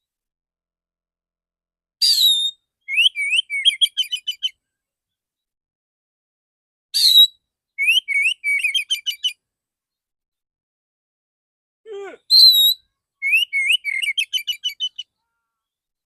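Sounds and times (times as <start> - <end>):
bird singing: 2.0 - 4.5, 7.0 - 9.4, 12.0 - 15.4.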